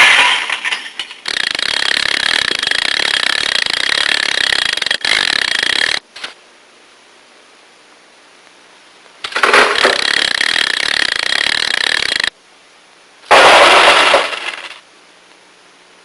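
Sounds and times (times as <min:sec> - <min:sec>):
harsh cartoon noise bursts: 0:01.2 - 0:06.0, 0:09.4 - 0:12.3.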